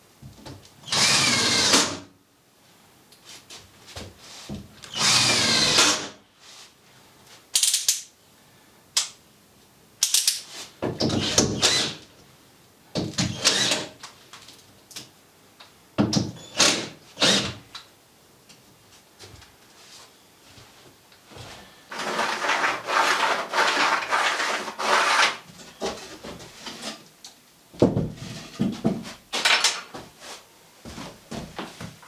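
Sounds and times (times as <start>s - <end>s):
power drill whining in bursts: 0.9s - 2.0s, 4.9s - 6.1s, 13.3s - 13.9s.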